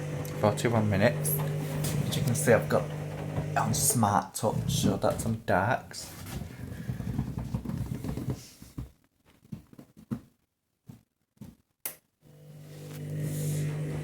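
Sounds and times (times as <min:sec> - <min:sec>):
washing machine drum swishing: 0:01.3 - 0:05.4.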